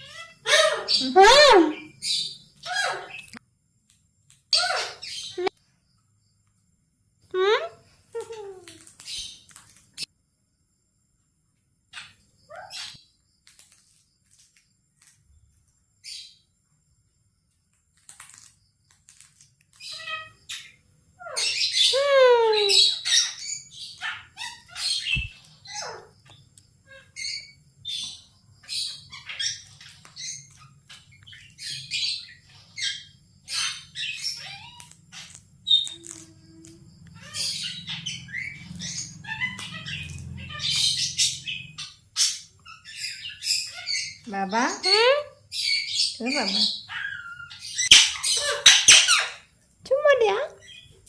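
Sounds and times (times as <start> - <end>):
parrot chirping and squawking: 0.0 - 3.4, 4.5 - 5.5, 19.7 - 26.2, 26.8 - 36.4, 37.1 - 49.5.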